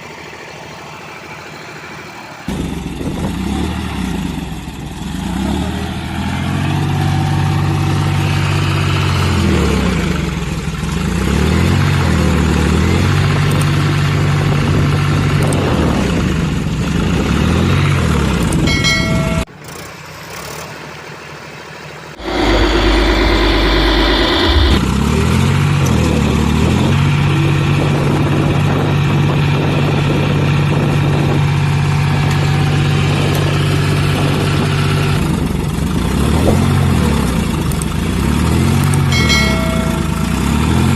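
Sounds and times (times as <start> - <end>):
vehicle engine revving: 22.2 - 26.9, 31.9 - 40.9.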